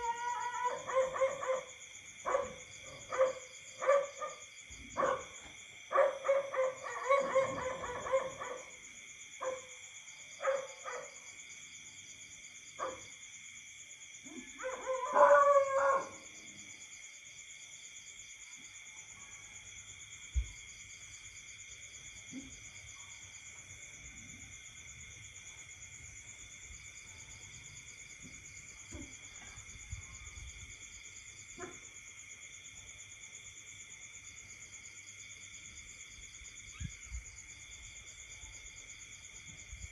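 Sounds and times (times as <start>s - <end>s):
night insects buzzing and trilling: 0.0s - 39.9s.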